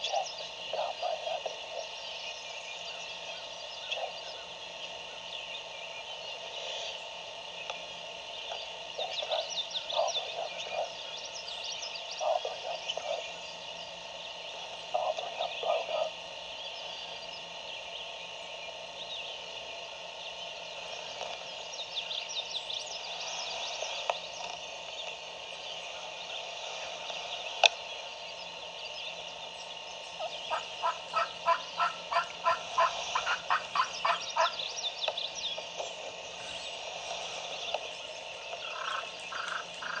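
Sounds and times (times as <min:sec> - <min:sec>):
pulsed calls: 0:00.0 - 0:40.0
songbirds chirping: 0:00.0 - 0:40.0
distant turkey gobbling: 0:14.8 - 0:16.3, 0:29.9 - 0:34.8, 0:38.4 - 0:40.0.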